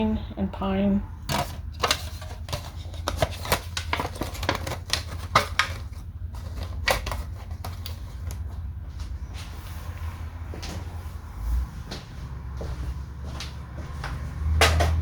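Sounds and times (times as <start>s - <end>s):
steady low hum: 0.0s - 15.0s
small containers and lids clicking: 1.3s - 8.4s.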